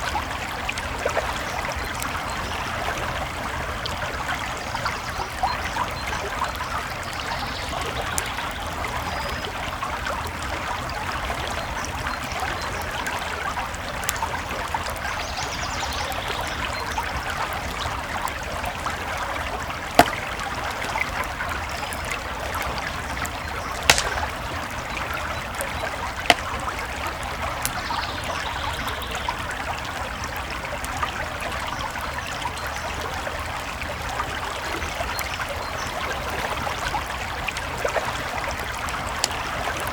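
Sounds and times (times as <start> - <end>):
creek flowing: 0.0 - 39.9
campfire crackling: 11.1 - 15.3, 17.0 - 31.4
sharp fire pops: 23.8 - 24.7.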